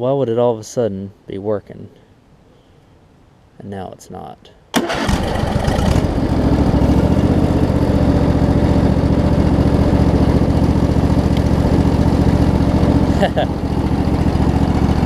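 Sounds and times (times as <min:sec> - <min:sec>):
riding mower engine running: 0:04.8 - 0:15.0.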